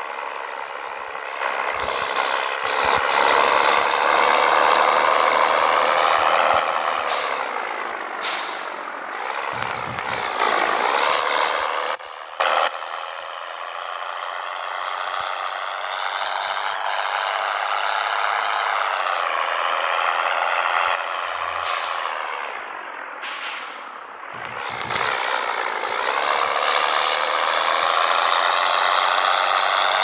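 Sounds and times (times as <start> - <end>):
diesel truck engine pulling away: 0.0 - 30.0
air brake hiss: 7.1 - 9.1, 21.6 - 24.3.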